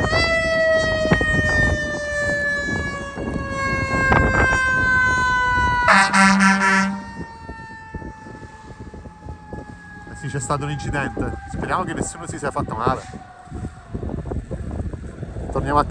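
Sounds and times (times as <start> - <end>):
fire engine siren wailing: 0.0 - 15.9
loud horn blast: 3.9 - 7.3.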